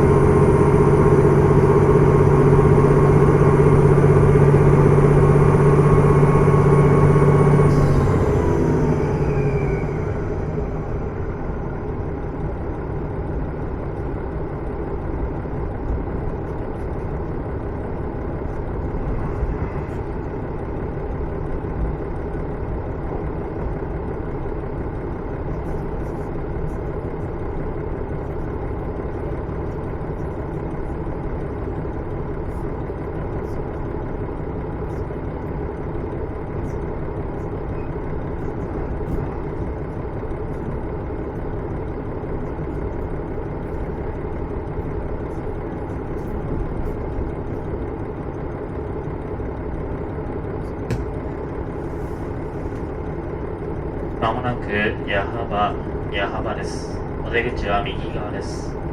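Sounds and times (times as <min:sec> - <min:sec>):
diesel engine drone: 0:00.0 - 0:58.9.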